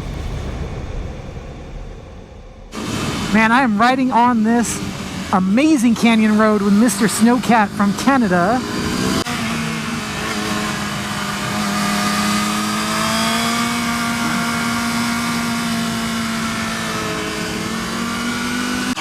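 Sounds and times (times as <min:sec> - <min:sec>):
wind noise: 0:00.0 - 0:09.2.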